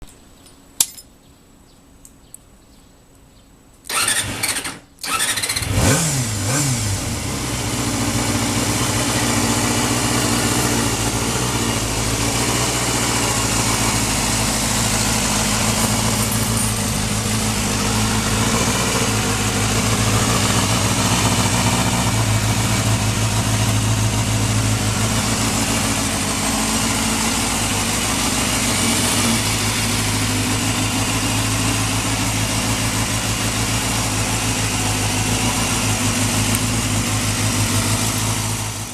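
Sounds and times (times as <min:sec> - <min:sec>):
starter motor cranking: 0:03.9 - 0:06.0
motorcycle engine idling: 0:05.2 - 0:38.9.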